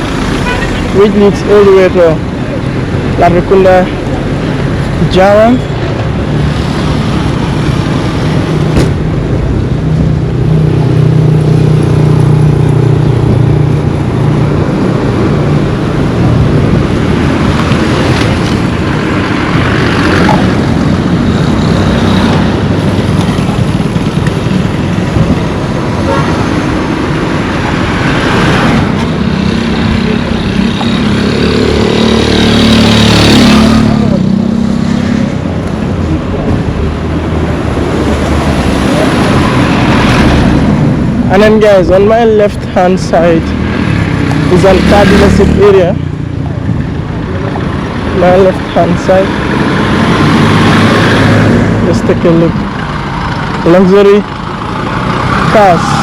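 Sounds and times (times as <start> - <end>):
vehicles passing: 0.0 - 56.0.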